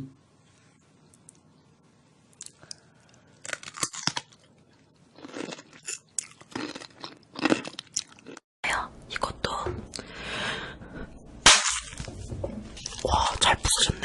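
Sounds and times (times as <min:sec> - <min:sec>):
crunchy food being chewed: 0:02.4 - 0:08.4.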